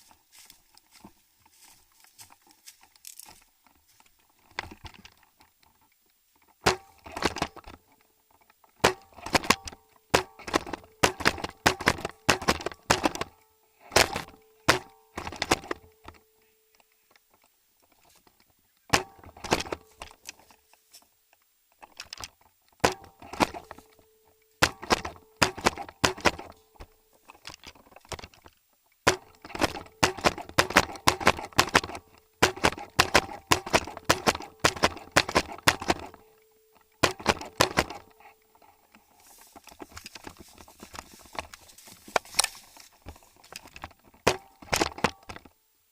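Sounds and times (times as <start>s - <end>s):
airsoft guns firing: 6.6s - 7.8s, 8.8s - 16.2s, 18.9s - 20.2s, 22.8s - 24.0s, 24.6s - 26.9s, 29.1s - 36.3s, 37.0s - 38.2s, 44.2s - 45.4s.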